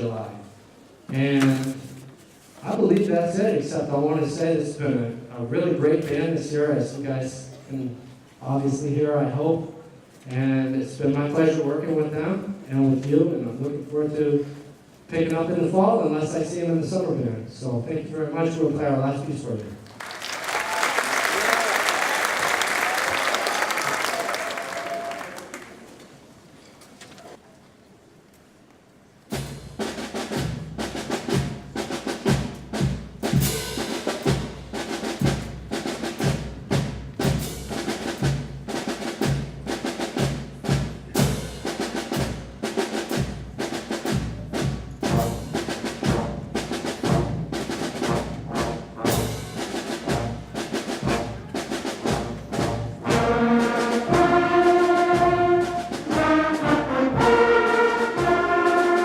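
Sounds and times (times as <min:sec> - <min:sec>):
drum and percussion beat: 0:29.3 - 0:59.0
brass holding chords: 0:45.0 - 0:59.0.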